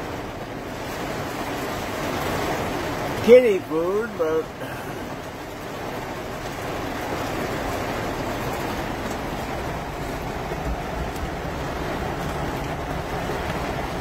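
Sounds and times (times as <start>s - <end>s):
heavy rain on car roof: 0.0s - 14.0s.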